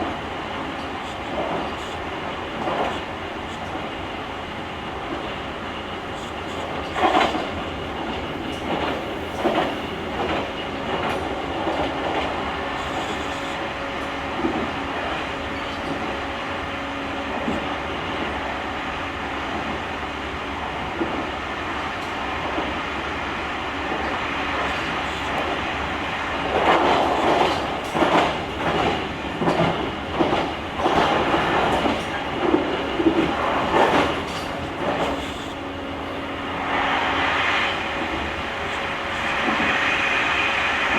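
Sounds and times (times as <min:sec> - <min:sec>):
train running hum: 0:00.0 - 0:40.9
wheels clacking over rail joints: 0:26.4 - 0:35.5.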